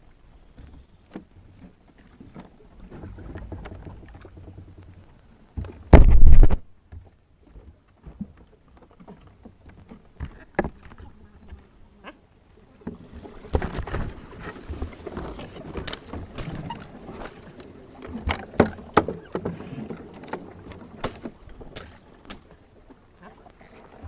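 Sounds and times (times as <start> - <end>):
water sloshing: 0.6 - 24.0
knocks on boat hull: 5.9 - 6.6.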